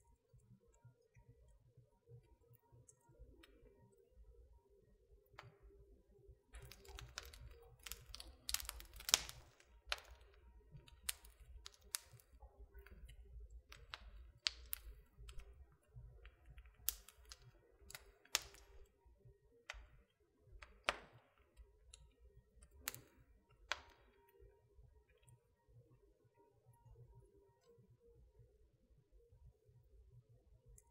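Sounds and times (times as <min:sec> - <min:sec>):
wood fire crackling: 0:06.5 - 0:19.0, 0:19.7 - 0:24.2.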